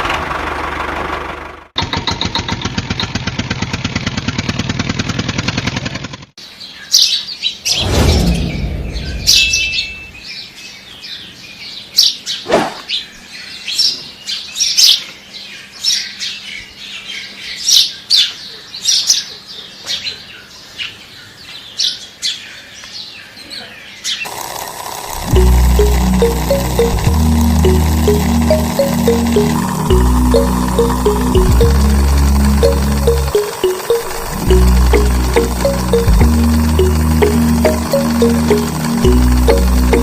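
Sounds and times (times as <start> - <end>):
small engine running: 0.0 - 6.3, 24.2 - 40.0
birds chirping: 6.6 - 14.5
low rumble: 7.8 - 10.2.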